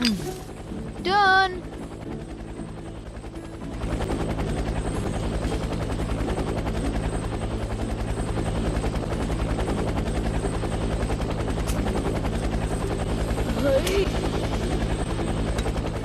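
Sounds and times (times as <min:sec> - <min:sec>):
helicopter rotor chop: 0:00.0 - 0:16.0.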